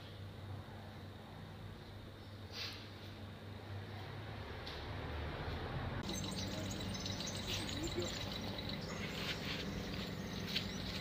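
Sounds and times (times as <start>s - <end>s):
steady low hum: 5.8s - 11.0s
small birds chirping: 6.0s - 11.0s.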